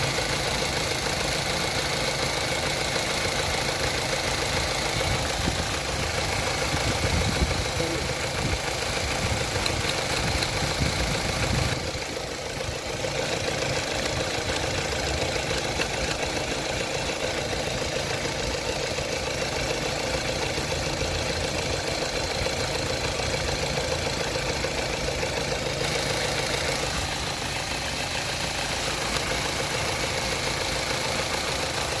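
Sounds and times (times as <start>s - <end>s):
car engine idling: 0.0s - 32.0s
throttle body clicking: 9.5s - 10.9s.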